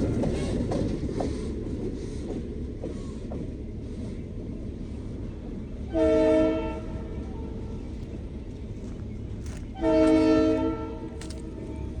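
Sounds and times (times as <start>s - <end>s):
passing train rumble: 0.0s - 12.0s
locomotive air horn blast: 5.9s - 7.8s, 9.8s - 11.1s.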